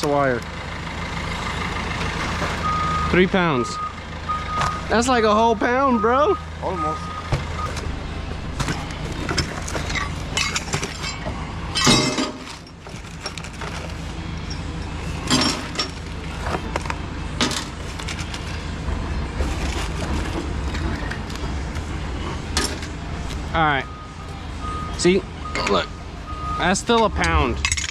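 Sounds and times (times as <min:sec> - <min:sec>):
metal crash: 0:08.6 - 0:12.8
scrap metal clinking: 0:08.6 - 0:16.6.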